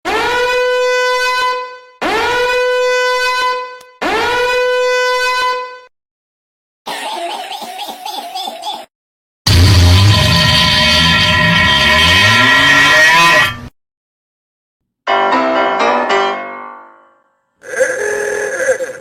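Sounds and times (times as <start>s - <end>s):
long horn blasts: 0.2s - 5.9s
rough noisy sound: 9.5s - 13.7s.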